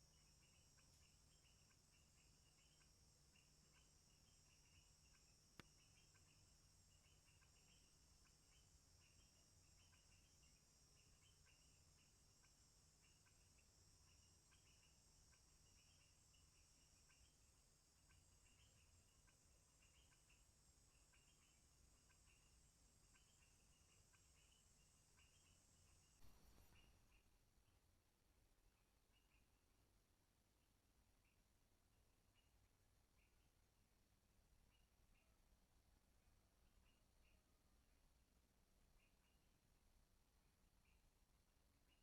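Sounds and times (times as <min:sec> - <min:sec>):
insect buzz: 0:00.0 - 0:27.2
cricket-like chirps: 0:00.0 - 0:27.8, 0:28.6 - 0:42.0.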